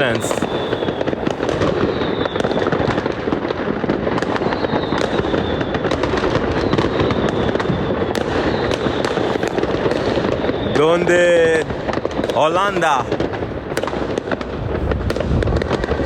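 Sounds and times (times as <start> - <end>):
fireworks crackling and banging: 0.0 - 16.0
faint high whistles: 1.8 - 2.6, 4.4 - 5.8, 10.2 - 11.2.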